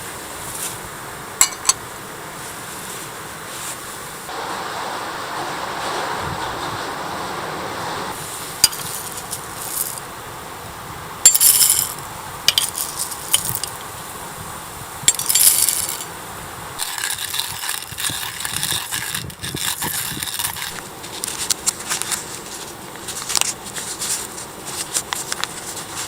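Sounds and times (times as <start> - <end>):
rustling: 0.0 - 4.4, 7.9 - 10.3, 11.2 - 26.0
small hard objects clinking: 1.4 - 1.8, 8.6 - 10.1, 11.2 - 14.0, 15.0 - 16.2, 16.8 - 26.0.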